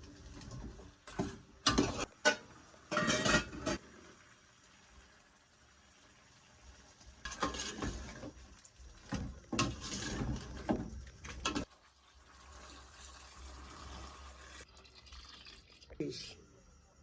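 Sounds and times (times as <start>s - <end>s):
pots and utensils clattering: 0.0s - 4.0s, 7.2s - 8.4s, 9.0s - 11.7s.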